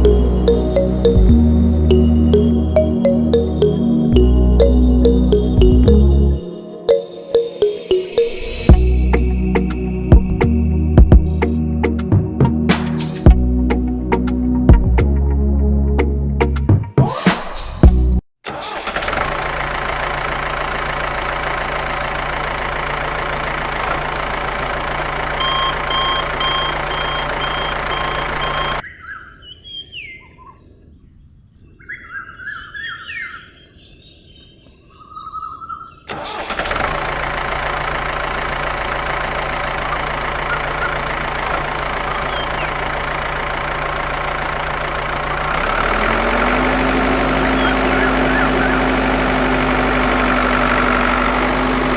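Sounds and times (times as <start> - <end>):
high beeps: 6.9 - 8.8, 25.4 - 28.8
small engine running: 18.5 - 28.8, 36.1 - 51.9
birds chirping: 21.8 - 36.1, 38.7 - 51.9.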